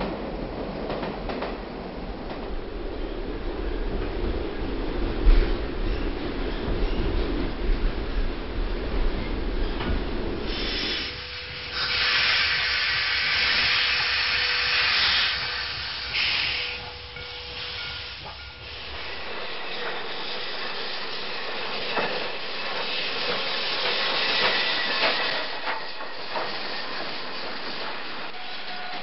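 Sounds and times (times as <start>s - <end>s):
train clicks: 0.0s - 2.6s, 9.8s - 20.9s, 21.5s - 29.0s
train running: 0.0s - 29.0s
train steam hissing: 10.4s - 29.0s.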